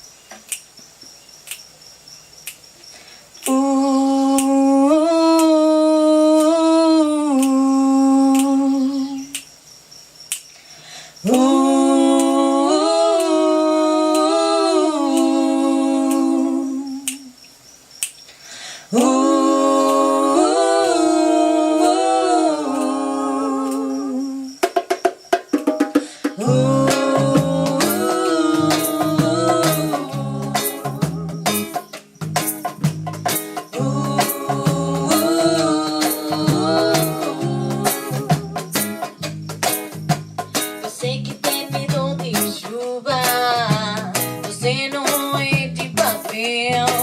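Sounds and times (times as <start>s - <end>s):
person humming: 3.4s - 9.4s, 11.2s - 17.4s, 18.9s - 24.6s, 26.3s - 31.7s, 33.8s - 38.8s.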